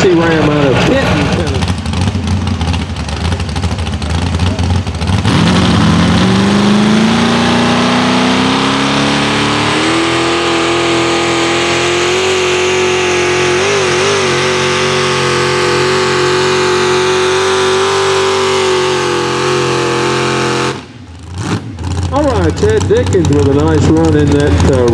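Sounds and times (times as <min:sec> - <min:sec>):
diesel engine at full throttle: 0:00.0 - 0:24.9.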